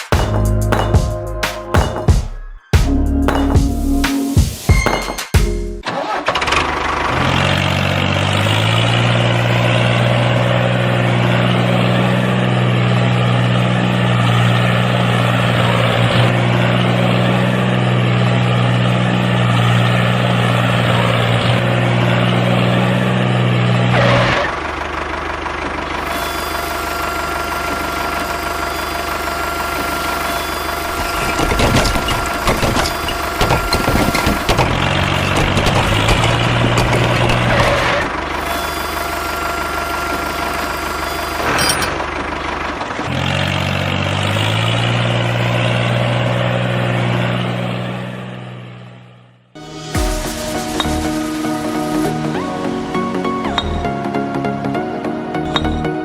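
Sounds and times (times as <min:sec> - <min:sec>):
tractor engine starting and idling: 0:00.0 - 0:56.0.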